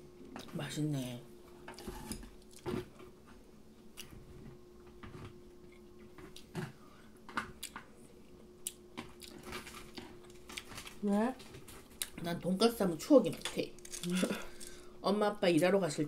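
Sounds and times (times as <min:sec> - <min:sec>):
faint steady hum: 0:00.0 - 0:16.0
chewing crispy fried food: 0:07.6 - 0:12.2.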